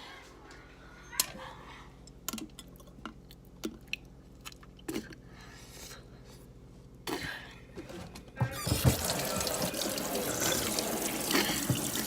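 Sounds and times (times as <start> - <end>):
person chewing food: 2.1 - 6.0.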